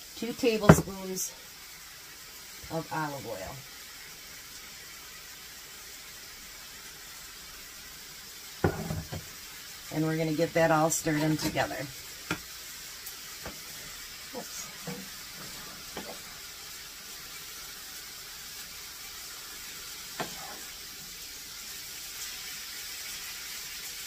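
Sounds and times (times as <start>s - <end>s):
chicken sizzling in oil: 0.0s - 24.0s
wooden spoon scraping pan: 10.9s - 11.8s, 20.2s - 20.8s.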